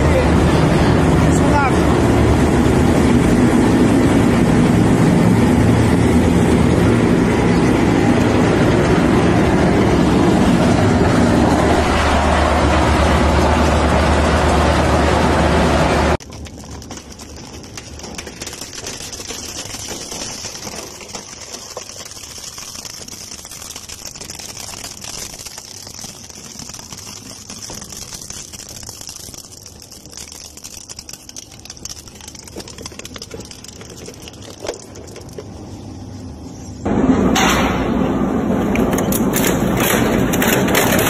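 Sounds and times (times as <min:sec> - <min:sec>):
shredding machine running: 0:00.0 - 0:28.8, 0:36.9 - 0:41.0
metallic clicks and rattles: 0:38.7 - 0:41.0.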